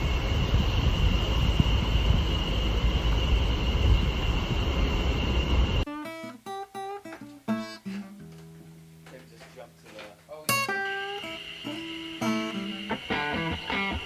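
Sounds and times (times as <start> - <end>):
loud low rumble: 0.0 - 5.8
thin steady whine: 0.0 - 5.9, 10.4 - 14.0.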